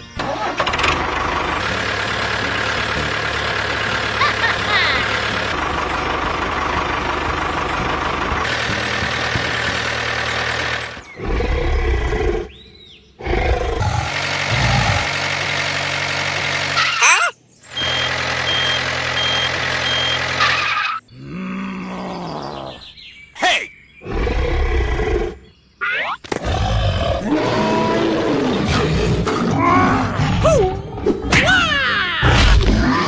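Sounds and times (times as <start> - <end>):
vehicle engine running: 0.5 - 11.2, 13.8 - 17.0, 17.6 - 21.0
short high beeps: 17.7 - 20.8.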